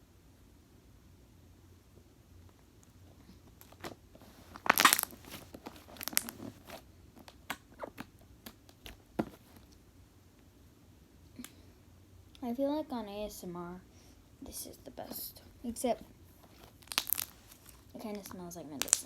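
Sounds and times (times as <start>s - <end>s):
slime crackling and popping: 3.6s - 6.5s, 16.7s - 19.0s.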